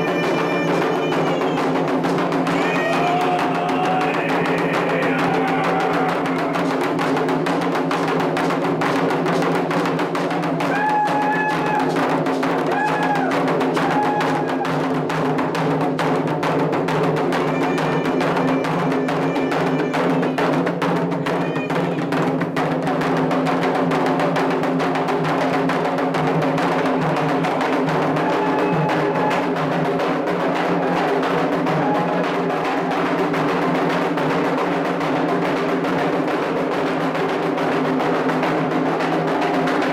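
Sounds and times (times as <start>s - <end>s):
hand drums playing dense rhythm: 0.0s - 39.9s
voices singing a chant: 2.5s - 7.0s.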